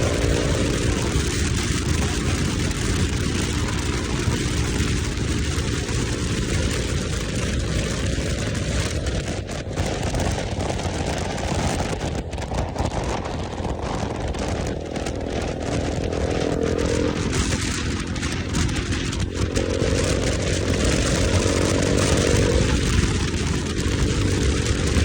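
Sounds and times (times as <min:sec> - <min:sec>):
motorcycle engine running: 0:00.0 - 0:25.0
wind rush on microphone: 0:00.0 - 0:25.0.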